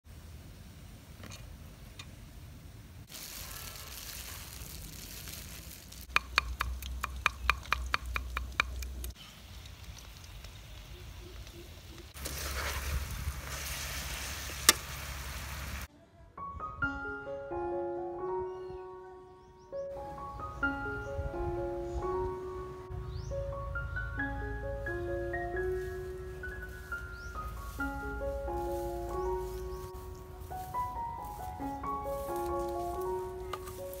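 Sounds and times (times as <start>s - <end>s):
hiss: 3.0s - 6.0s, 12.2s - 15.9s
oil sizzling in a wok: 3.1s - 6.1s, 11.8s - 15.9s
meat frying: 3.1s - 15.9s.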